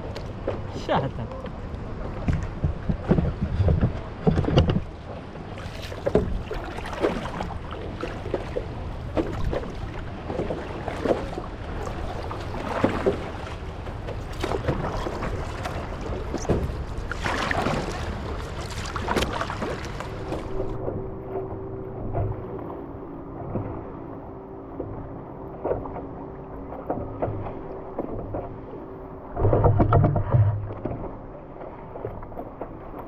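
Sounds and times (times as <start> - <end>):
paddles splashing: 0.0 - 20.8
wind rumbling on microphone: 0.0 - 25.2
water lapping around boat: 0.0 - 33.0.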